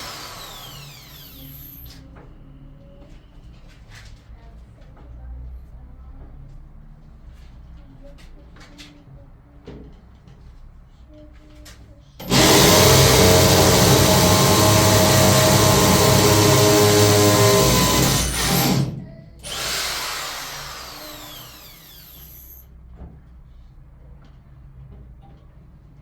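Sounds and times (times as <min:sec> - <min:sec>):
power tool whining: 0:00.0 - 0:01.9, 0:12.2 - 0:22.6.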